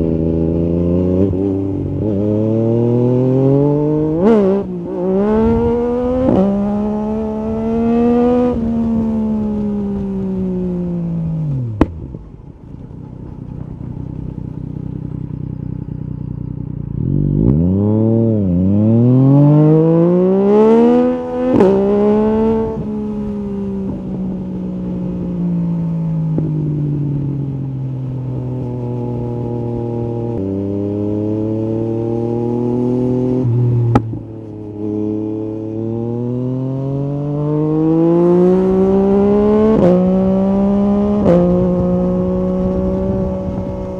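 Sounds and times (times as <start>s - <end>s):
motorcycle engine revving: 0.0s - 43.9s
exhaust cracks: 11.6s - 17.0s.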